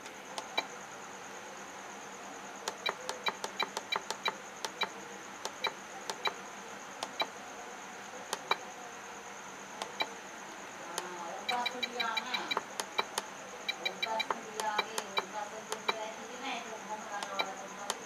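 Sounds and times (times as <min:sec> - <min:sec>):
transmitter key clicks with beeps: 0:02.7 - 0:06.4, 0:07.0 - 0:07.3, 0:08.3 - 0:08.6, 0:09.8 - 0:10.1, 0:11.5 - 0:16.0, 0:17.2 - 0:18.0.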